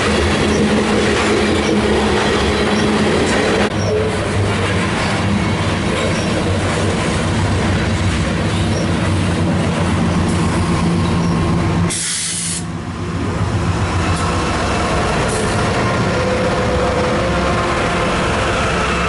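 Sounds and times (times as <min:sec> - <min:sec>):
steel wheels clattering on rails: 0:00.0 - 0:11.4
short hiss: 0:11.9 - 0:12.7.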